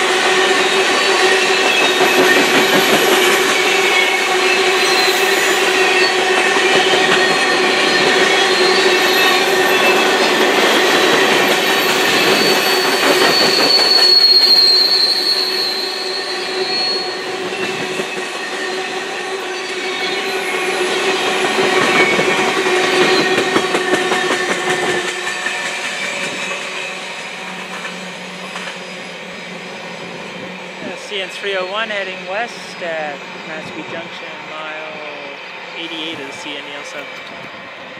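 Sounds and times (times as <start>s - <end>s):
high-pitched wheel squeal: 0.9s - 18.8s
steel wheels clattering on rails: 1.0s - 15.8s, 20.8s - 29.2s.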